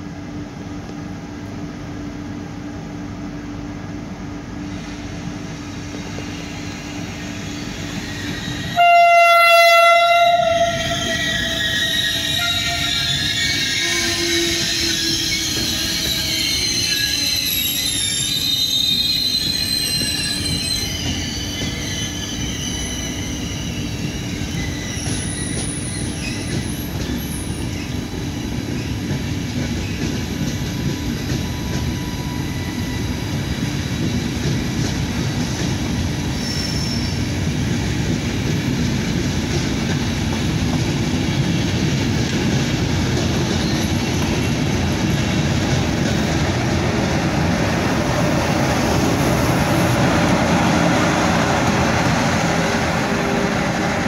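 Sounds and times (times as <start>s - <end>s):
train rolling past: 0.0s - 54.0s
train wheels squealing: 4.6s - 37.8s, 43.0s - 54.0s.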